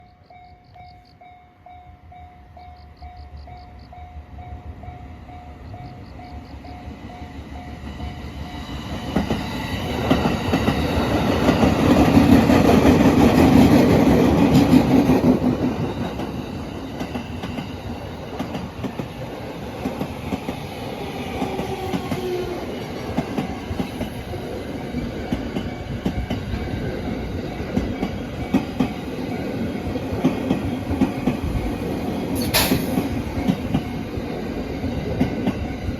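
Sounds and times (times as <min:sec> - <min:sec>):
train wheels clattering over rail joints: 0:21.4 - 0:34.2.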